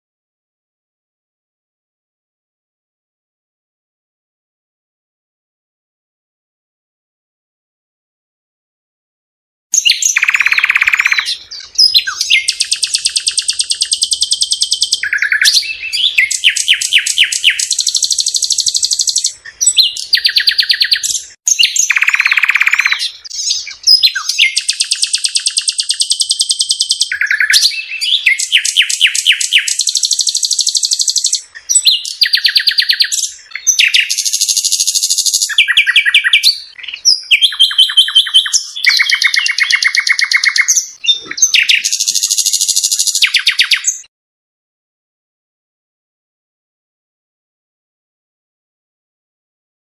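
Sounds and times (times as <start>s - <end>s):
songbird singing trills: 9.8s - 44.1s.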